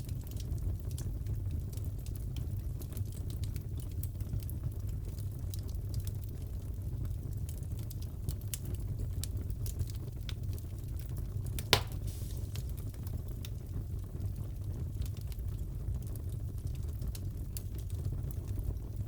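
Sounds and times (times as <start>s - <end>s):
burning wood crackling: 7.8s - 15.5s
loud fire pop: 11.6s - 12.8s.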